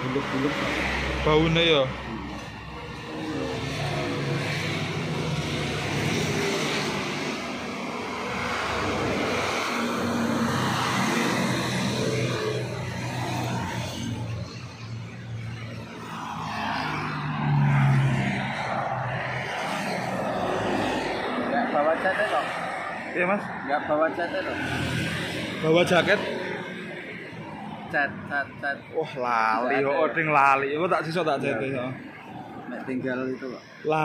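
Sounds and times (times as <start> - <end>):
vehicle engines droning: 0.0 - 34.0
vehicle passing: 0.0 - 34.0.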